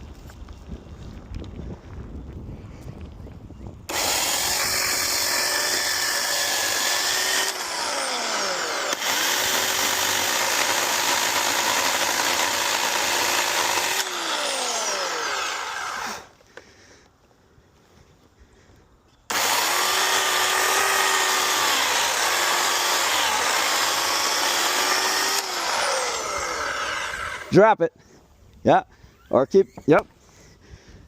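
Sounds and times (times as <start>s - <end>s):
chainsaw running: 3.9s - 16.4s, 19.3s - 27.6s.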